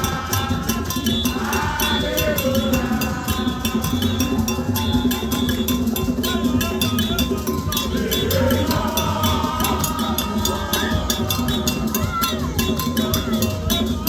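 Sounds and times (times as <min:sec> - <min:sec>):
bell struck in fast beat: 0:00.0 - 0:14.0
percussion music: 0:00.0 - 0:14.0
voices singing or chanting: 0:00.0 - 0:14.0.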